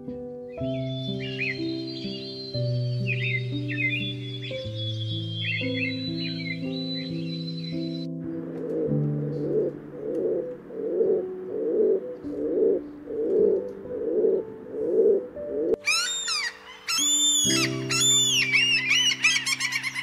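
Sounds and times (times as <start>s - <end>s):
soft piano music: 0.0s - 20.0s
pigeon cooing: 7.7s - 16.6s
gull calling: 8.7s - 20.0s.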